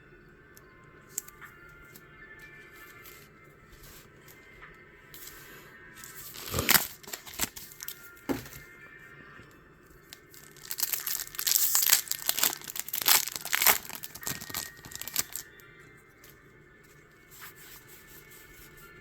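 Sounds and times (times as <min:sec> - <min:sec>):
quiet background music: 0:00.0 - 0:19.0
foil wrapper crinkling and tearing: 0:06.0 - 0:08.0, 0:10.1 - 0:15.6.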